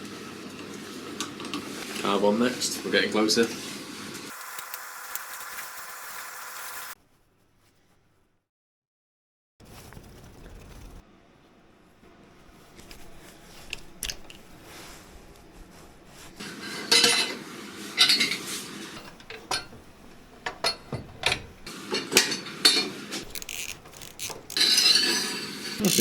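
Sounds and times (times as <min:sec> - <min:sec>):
metal scraping: 0:23.2 - 0:26.0
metal tools clinking: 0:23.3 - 0:26.0.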